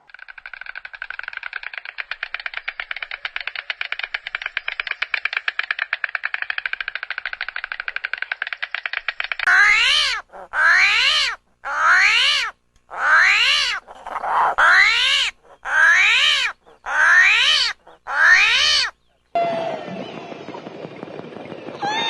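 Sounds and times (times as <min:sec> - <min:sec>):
fast buzzing rattle: 0:00.0 - 0:11.6
animal calling: 0:06.3 - 0:19.2.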